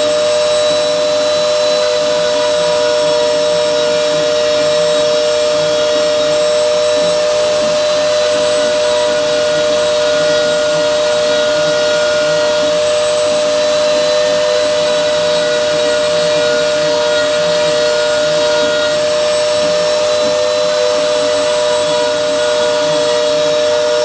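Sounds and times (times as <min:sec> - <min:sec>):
router spindle high whine: 0:00.0 - 0:24.0.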